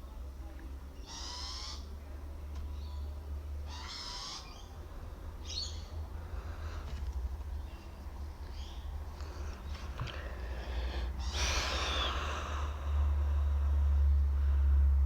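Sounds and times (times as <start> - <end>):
steady low hum: 0.0 - 15.0
bird harsh raspy calls: 1.0 - 2.0, 3.6 - 6.0, 8.5 - 13.4.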